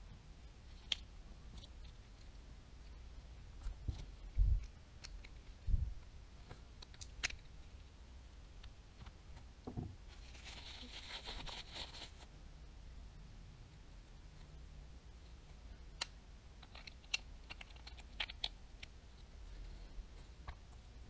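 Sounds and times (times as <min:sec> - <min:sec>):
sharp clicks of small parts: 0:06.8 - 0:07.5, 0:16.0 - 0:19.0.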